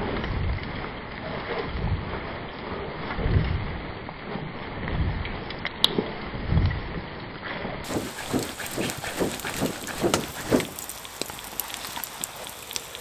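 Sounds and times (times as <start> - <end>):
crackling and sizzling: 7.8 - 13.0
stirring eggs in a pan: 7.8 - 13.0.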